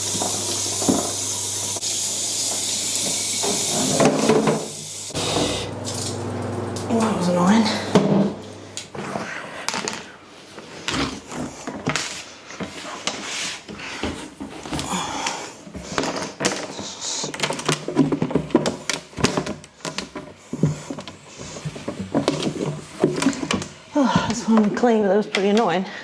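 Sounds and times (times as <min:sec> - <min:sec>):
plastic fridge parts clattering: 0:07.9 - 0:25.7.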